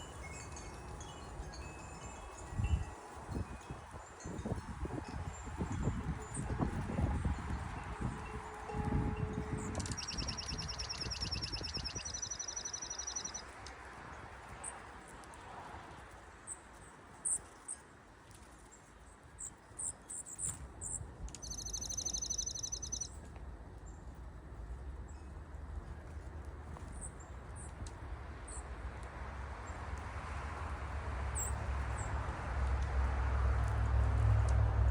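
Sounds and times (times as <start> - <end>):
high bird chip calls: 9.8 - 13.4, 20.4 - 23.1
songbird trilling: 9.8 - 13.4, 21.4 - 23.1.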